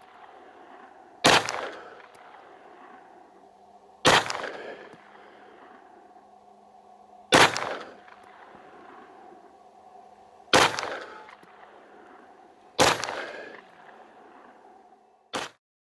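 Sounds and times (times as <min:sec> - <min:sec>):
pistol shots with echo: 0:00.0 - 0:06.2, 0:07.3 - 0:09.5, 0:10.5 - 0:14.6.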